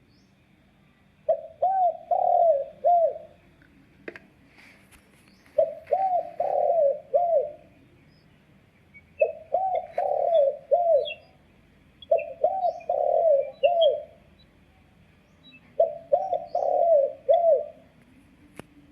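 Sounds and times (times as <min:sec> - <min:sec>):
dove cooing through speaker: 0:01.2 - 0:03.4, 0:05.6 - 0:07.8, 0:09.2 - 0:11.4, 0:12.1 - 0:14.3, 0:15.6 - 0:18.0.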